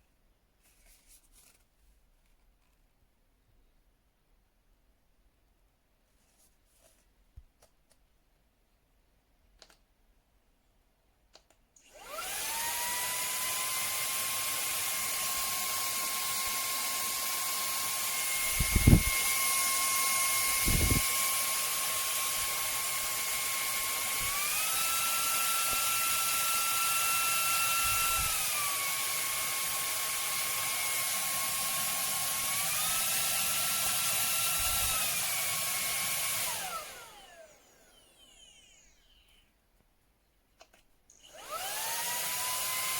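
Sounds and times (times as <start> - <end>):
handheld vacuum cleaner motor whine: 11.8 - 39.5, 41.1 - 42.9.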